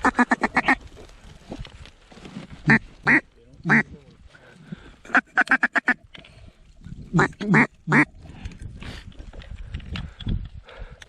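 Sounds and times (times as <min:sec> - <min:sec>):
duck call quacking: 0:00.0 - 0:00.8, 0:02.7 - 0:03.8, 0:05.1 - 0:06.0, 0:07.2 - 0:08.1.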